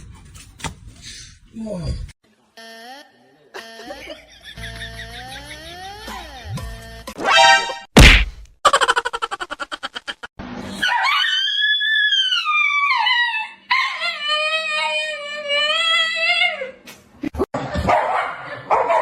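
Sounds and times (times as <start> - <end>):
sharp knock: 8.0 - 8.4.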